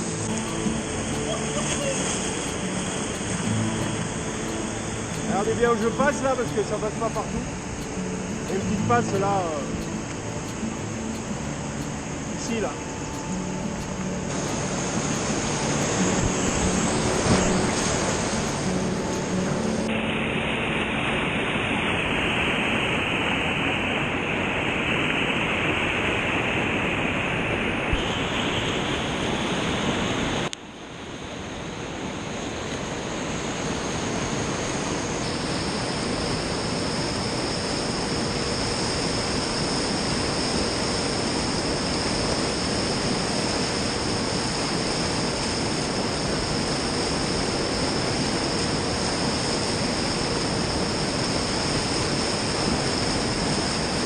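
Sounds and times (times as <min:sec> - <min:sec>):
whitewater rushing: 0:00.0 - 0:30.5.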